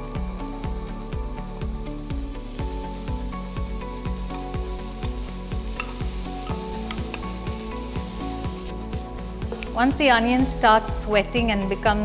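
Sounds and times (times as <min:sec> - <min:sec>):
background music with steady beat: 0:00.0 - 0:12.0
onions sizzling in a pan: 0:00.0 - 0:12.0
wooden spatula stirring: 0:05.7 - 0:10.6.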